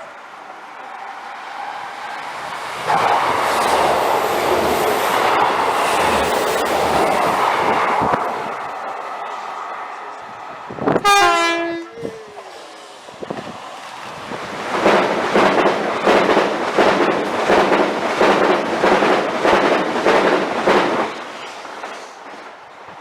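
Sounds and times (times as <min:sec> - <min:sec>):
train wheels over rail joints: 0:00.7 - 0:23.0
two-note train horn: 0:11.0 - 0:12.0.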